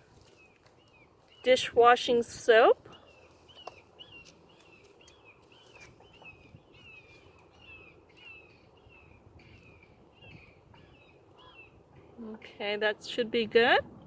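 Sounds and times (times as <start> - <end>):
faint bird chirping: 2.8 - 12.6.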